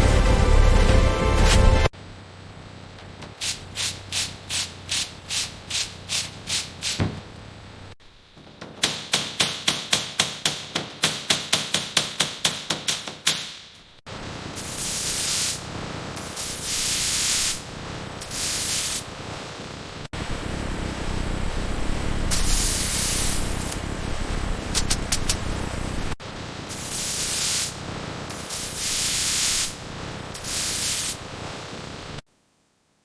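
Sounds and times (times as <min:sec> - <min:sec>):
steady hiss: 0:03.4 - 0:07.1, 0:14.1 - 0:32.2.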